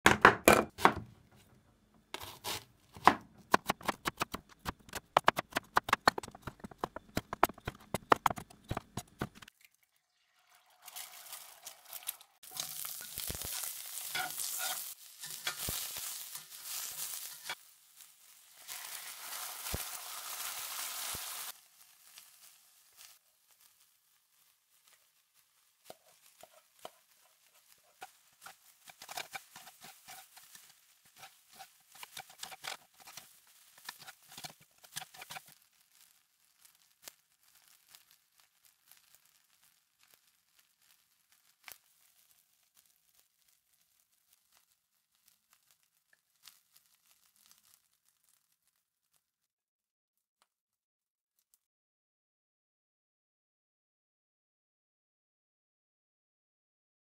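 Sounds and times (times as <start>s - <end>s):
food sizzling in a skillet: 9.4s - 48.8s
spoon scraping a pan: 12.5s - 17.7s, 25.8s - 35.6s.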